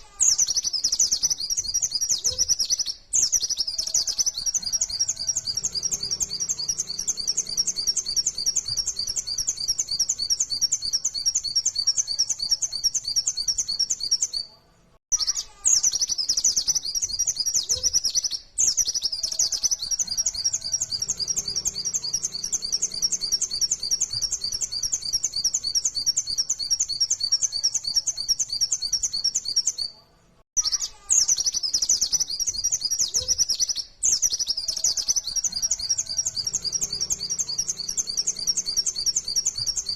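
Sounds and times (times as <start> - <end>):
bird chattering song: 0.0 - 14.5, 15.1 - 30.0, 30.6 - 39.9.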